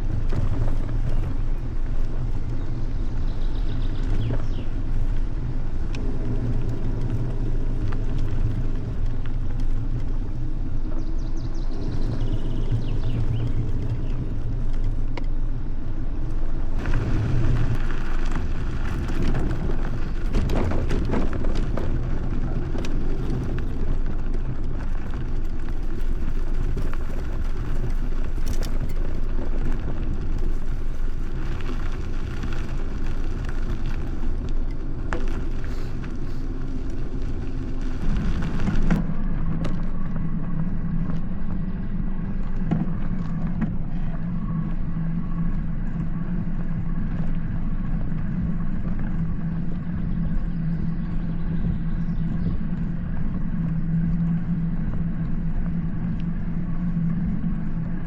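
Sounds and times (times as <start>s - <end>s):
road and tyre noise: 0.0s - 58.0s.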